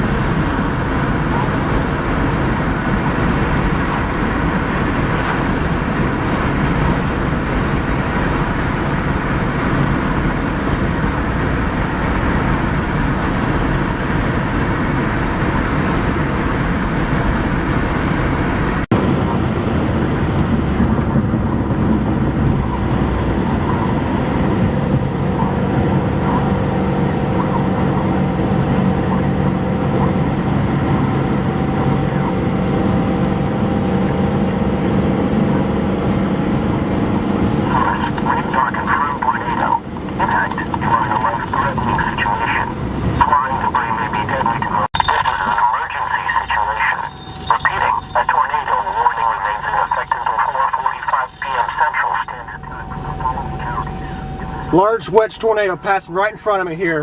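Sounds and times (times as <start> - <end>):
moving vehicle noise: 0.0 - 57.0
faint steady tones: 37.8 - 57.0.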